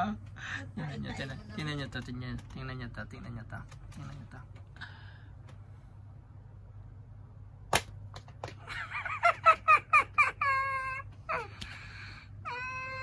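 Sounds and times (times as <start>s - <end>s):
cat yowling: 12.5s - 13.0s.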